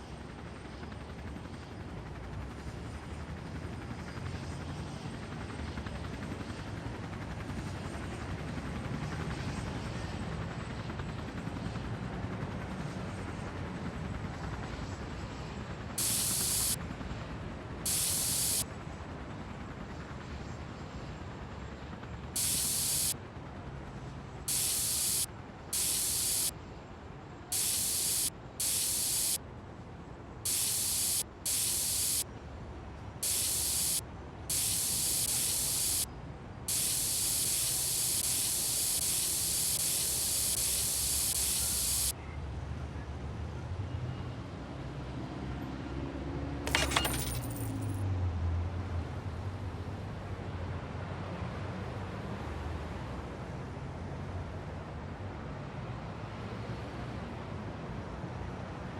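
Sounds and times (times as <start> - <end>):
short bursts of hissing spray: 16.0 - 16.8, 17.9 - 18.6, 22.4 - 23.2, 24.5 - 26.5, 27.5 - 29.4, 30.5 - 32.2, 33.2 - 36.1, 36.7 - 42.1, 46.7 - 47.8.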